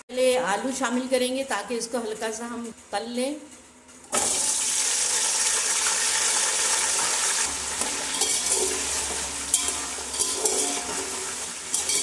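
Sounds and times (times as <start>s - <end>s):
potatoes sizzling in hot oil: 4.2s - 12.0s
metal ladle scraping pot: 7.8s - 12.0s.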